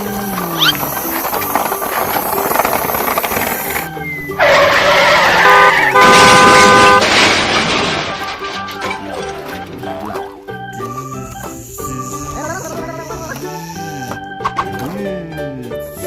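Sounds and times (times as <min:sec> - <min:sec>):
truck engine running: 0:00.0 - 0:14.2
truck horn honks: 0:04.4 - 0:07.1.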